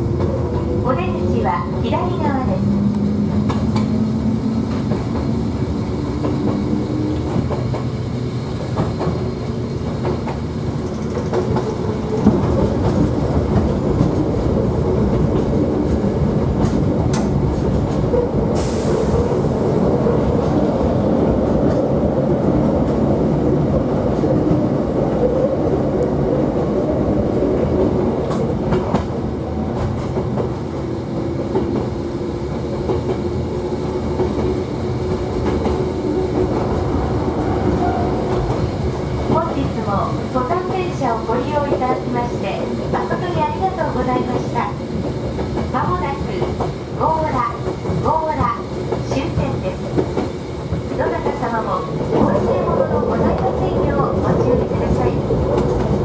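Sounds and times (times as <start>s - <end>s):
train wheels rumbling on rails: 0.0s - 56.0s
hiss burst: 18.6s - 19.4s.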